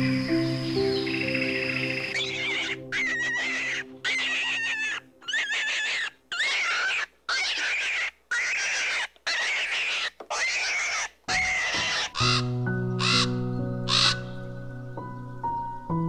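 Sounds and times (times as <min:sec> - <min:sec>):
soft music: 0:00.0 - 0:06.7, 0:11.3 - 0:16.0
bird calling: 0:00.0 - 0:14.6.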